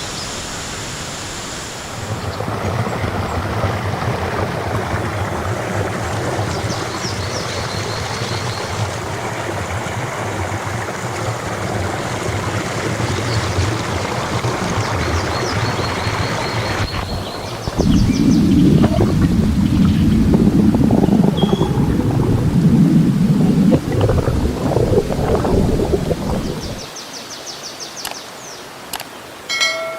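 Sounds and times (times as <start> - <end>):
stream water rushing: 0.0 - 29.9
bird trilling: 21.3 - 21.8.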